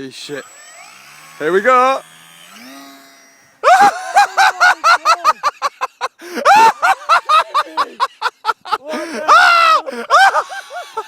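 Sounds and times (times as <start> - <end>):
people laughing hysterically: 3.6 - 11.0.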